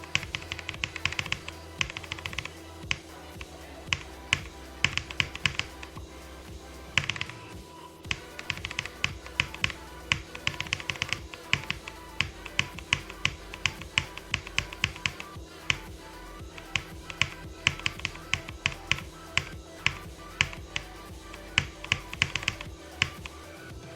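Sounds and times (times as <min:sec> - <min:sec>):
steady low hum: 0:00.0 - 0:23.9
sharp clicks or taps: 0:03.9 - 0:05.9.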